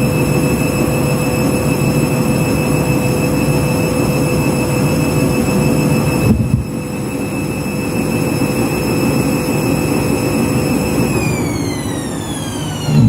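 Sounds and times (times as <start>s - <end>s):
washing machine running: 0.0s - 13.0s.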